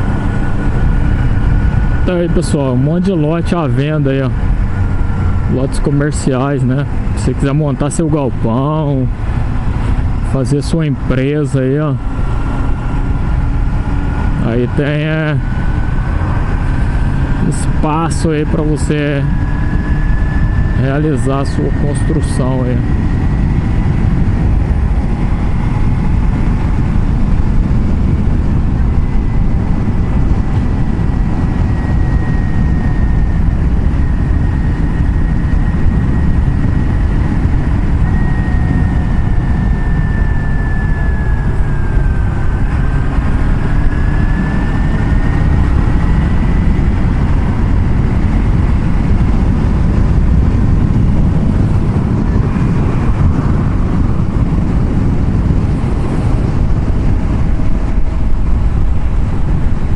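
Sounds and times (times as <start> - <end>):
motorcycle engine whine: 0.0 - 59.9
wind rumble on microphone: 0.0 - 59.9.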